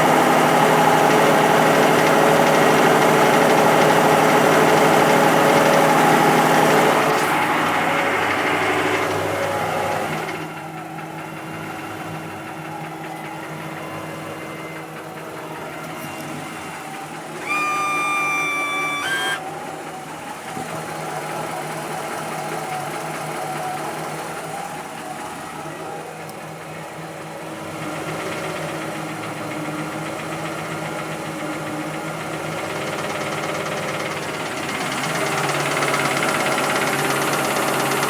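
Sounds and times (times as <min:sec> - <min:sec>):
engine idling: 0:00.0 - 0:38.0
engine knock: 0:00.0 - 0:38.0
high horn-like tone: 0:17.4 - 0:19.4.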